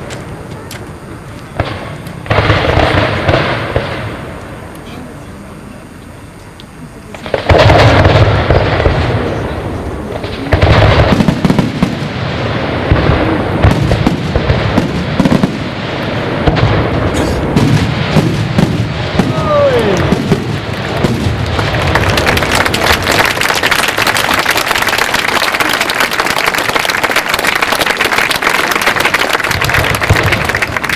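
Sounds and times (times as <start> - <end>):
fireworks booming: 0.0 - 5.2, 7.1 - 30.9.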